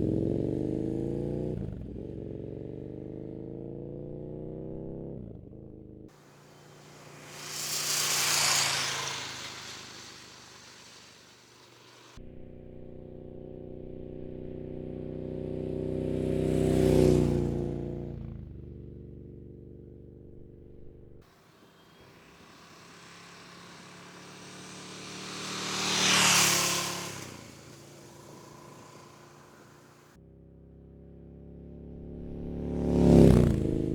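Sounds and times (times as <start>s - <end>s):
motorcycle passing by: 0.0s - 33.9s.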